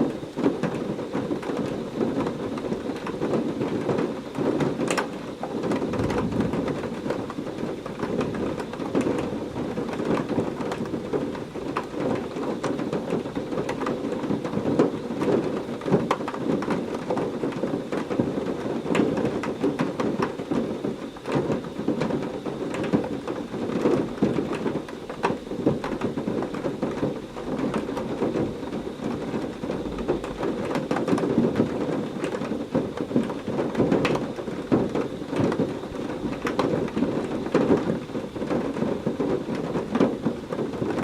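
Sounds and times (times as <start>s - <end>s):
heavy rain pouring: 0.0s - 41.0s
rumble of thunder: 3.0s - 17.8s
thunder crack: 5.6s - 10.9s.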